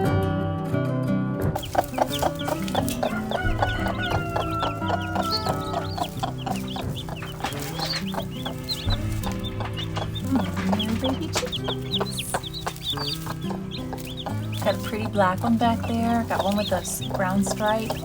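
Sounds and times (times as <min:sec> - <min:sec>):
acoustic guitar music: 0:01.1 - 0:18.0
chickens clucking: 0:01.6 - 0:18.0.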